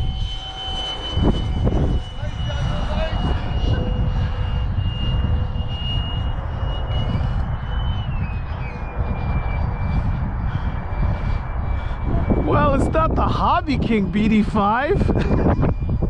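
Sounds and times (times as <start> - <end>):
electric jet fan whine: 0.0 - 16.0.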